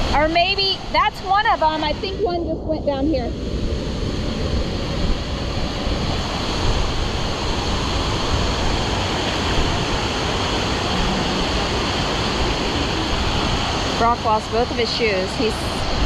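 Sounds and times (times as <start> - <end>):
waterfall rushing: 3.3 - 16.0.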